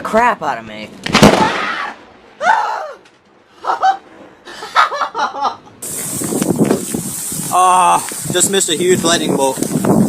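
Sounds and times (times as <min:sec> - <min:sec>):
person laughing: 0:03.5 - 0:05.8
steady hiss: 0:05.8 - 0:10.0.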